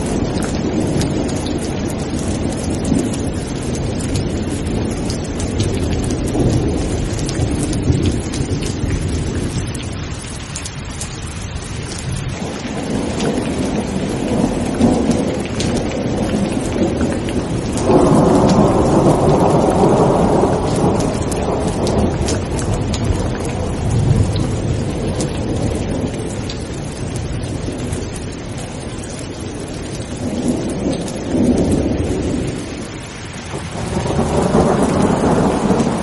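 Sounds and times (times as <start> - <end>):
heavy rain: 0.0 - 36.0
rolling thunder: 0.0 - 36.0.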